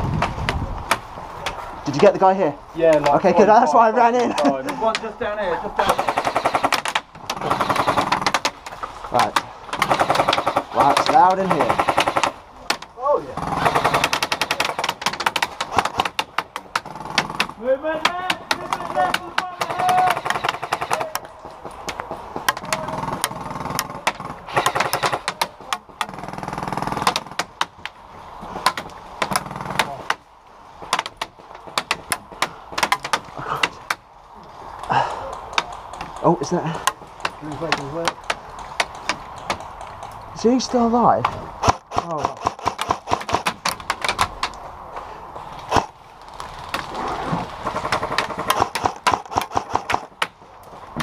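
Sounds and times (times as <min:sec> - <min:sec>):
airsoft gunfire clicks: 0:41.6 - 0:44.6, 0:47.7 - 0:50.3
loud crack: 0:41.6 - 0:44.6, 0:45.6 - 0:50.4.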